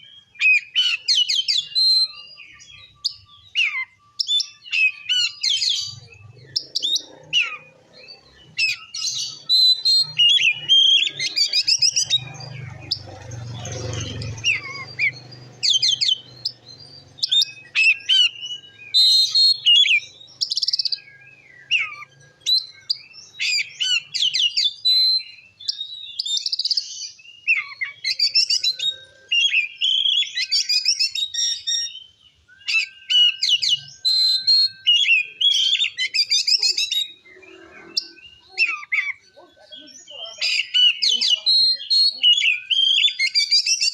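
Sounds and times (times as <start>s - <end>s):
bird singing whistles and trills: 0.0s - 43.9s.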